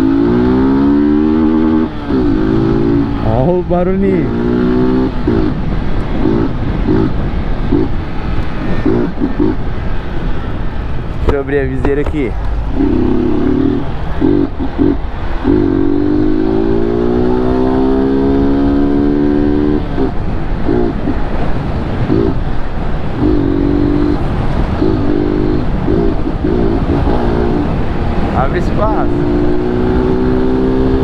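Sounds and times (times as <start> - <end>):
motorcycle engine running: 0.0 - 31.0
wind noise: 0.0 - 31.0
rising pitched tone: 11.4 - 20.9.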